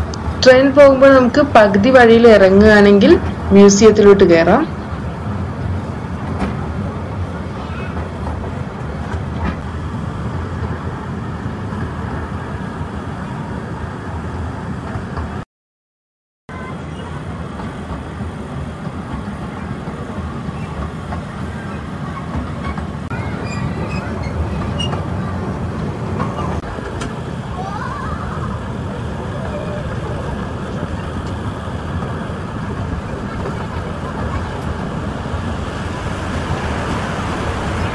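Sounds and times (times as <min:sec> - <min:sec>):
tourist train rumbling on track: 0:00.0 - 0:15.4, 0:16.5 - 0:37.9.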